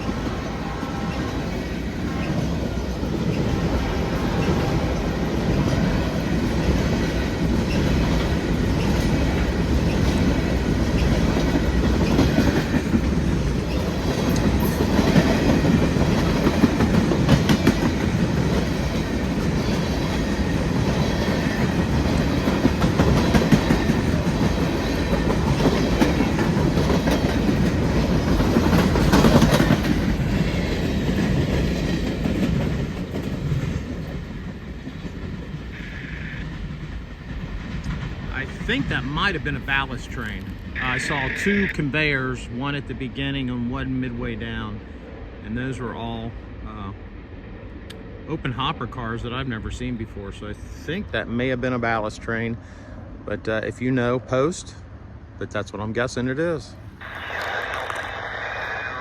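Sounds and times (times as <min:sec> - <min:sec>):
wheels clacking over rail joints: 0:00.0 - 0:35.8
freight train rumbling past: 0:00.0 - 0:59.0.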